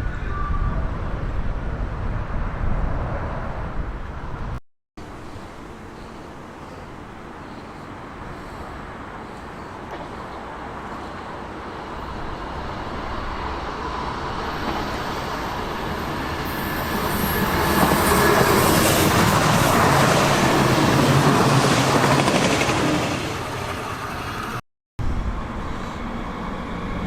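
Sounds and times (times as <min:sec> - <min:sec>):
train wheels running on rails: 0:12.1 - 0:24.6.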